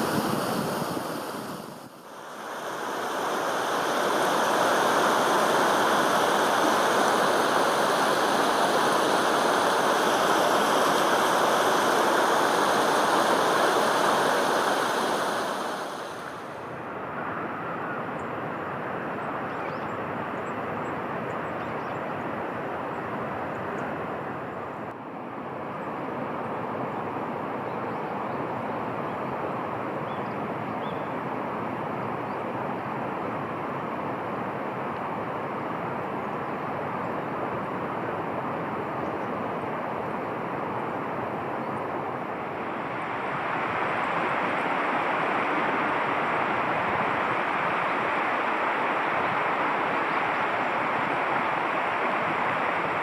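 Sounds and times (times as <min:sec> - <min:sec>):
running water rushing: 0:00.0 - 0:17.4, 0:33.5 - 0:53.0.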